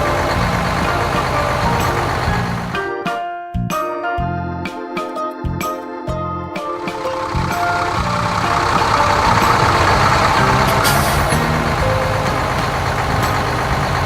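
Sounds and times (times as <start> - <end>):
heavy vehicle engine rumble: 0.0 - 2.8, 6.8 - 14.0
faint musical notes: 0.0 - 14.0.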